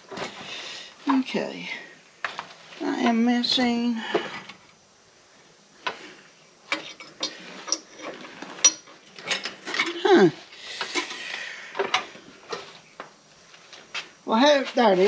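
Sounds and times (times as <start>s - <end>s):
metal tools clinking: 6.7s - 10.2s.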